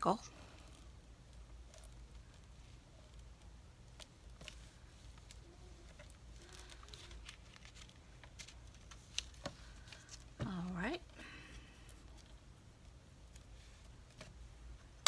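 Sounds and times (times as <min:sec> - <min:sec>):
paper rustling: 0:04.3 - 0:10.3.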